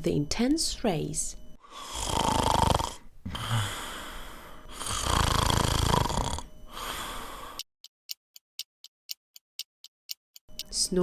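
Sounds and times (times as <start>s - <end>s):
person snoring: 1.7s - 7.6s
clock ticking: 7.6s - 11.0s.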